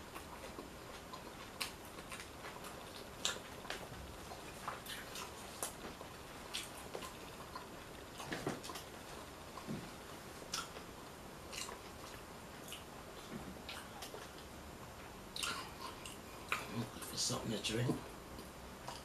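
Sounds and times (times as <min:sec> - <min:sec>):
person chewing crunchy taco: 0:00.0 - 0:14.5, 0:18.4 - 0:19.0.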